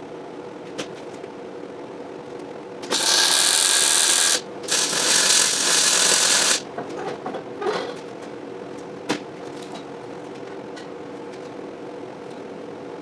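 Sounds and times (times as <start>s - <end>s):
welding arc crackling: 2.9s - 6.6s.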